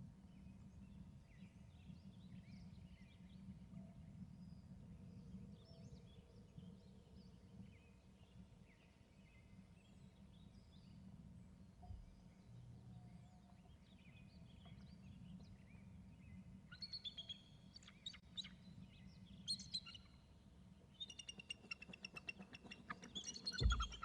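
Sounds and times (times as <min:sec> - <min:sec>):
bird chirps: 0:16.7 - 0:20.2, 0:20.9 - 0:24.0.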